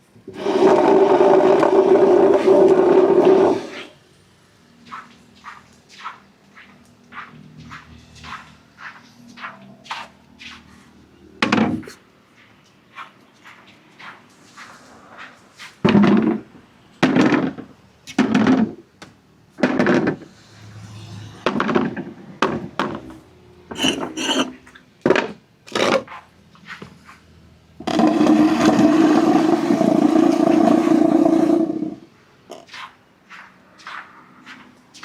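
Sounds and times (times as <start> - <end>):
marbles rolling down wooden ramps: 0.4 - 3.6, 27.8 - 32.0.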